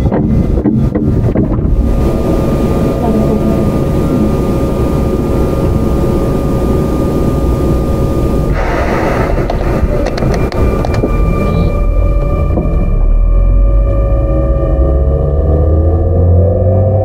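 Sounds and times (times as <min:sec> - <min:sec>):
train wheels rumbling on track: 0:00.0 - 0:13.2
steady electric motor tones: 0:01.6 - 0:17.0.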